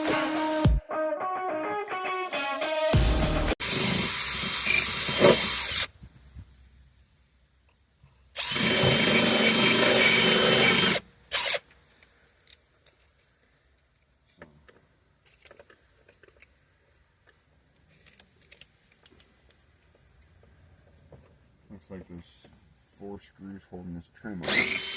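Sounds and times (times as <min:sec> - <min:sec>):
power drill running: 0:03.6 - 0:05.9, 0:08.4 - 0:11.6, 0:24.4 - 0:24.9.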